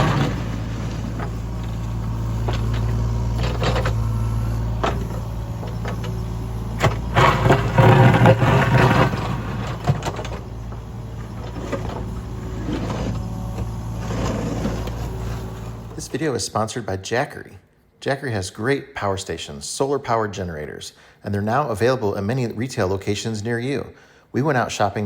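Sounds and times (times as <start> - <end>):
metal clanks: 0.0 - 15.8
bucket scraping gravel: 0.0 - 16.1
excavator diesel engine running: 0.0 - 16.3.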